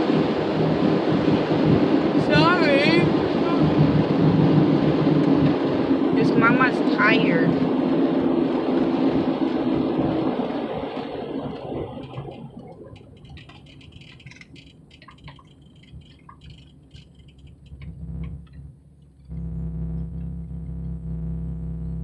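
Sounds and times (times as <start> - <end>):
car road and engine noise: 0.0 - 22.0
low hum: 0.0 - 22.0
faint ticks and rattles: 11.5 - 19.4.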